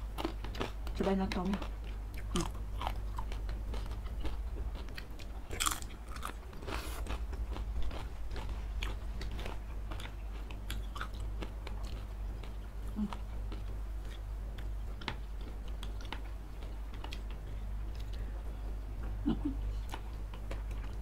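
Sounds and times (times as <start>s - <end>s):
chewing and biting noodles: 1.6s - 17.4s.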